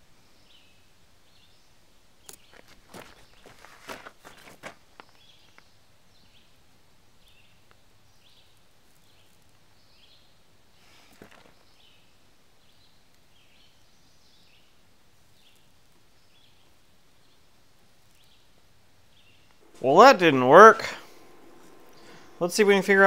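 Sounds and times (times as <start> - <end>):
bird chirping: 19.1 - 23.0.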